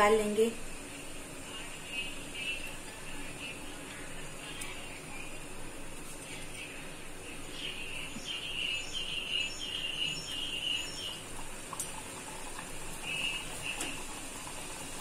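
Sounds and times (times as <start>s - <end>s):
hot oil sizzling: 0.0s - 15.0s
small bird chirping: 7.6s - 11.2s.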